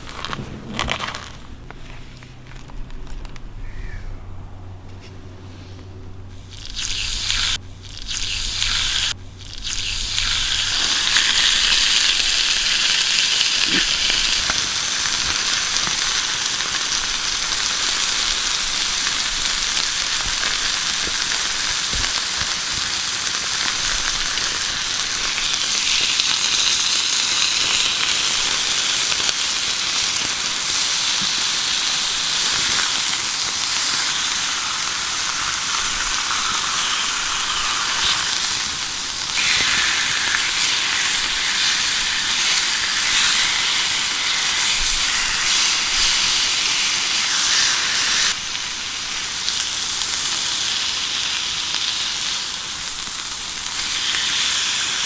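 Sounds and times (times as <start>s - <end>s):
food sizzling in a pan: 6.4s - 55.0s.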